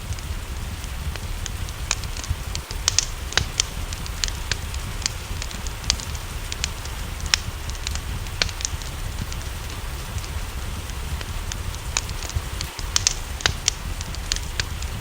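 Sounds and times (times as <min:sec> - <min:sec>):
rain rushing: 0:00.0 - 0:15.0
wood fire crackling and popping: 0:00.0 - 0:15.0.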